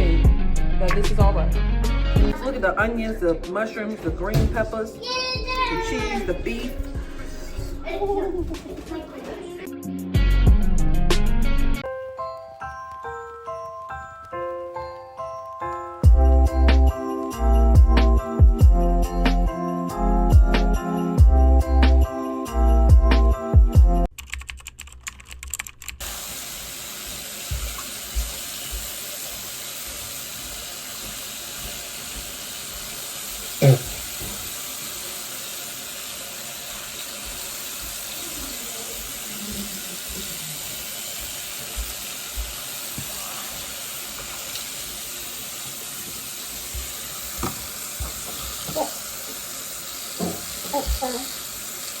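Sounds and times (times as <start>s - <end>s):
tap water running into sink: 4.0s - 9.6s, 26.0s - 52.0s
jingle-bell music: 11.8s - 24.1s.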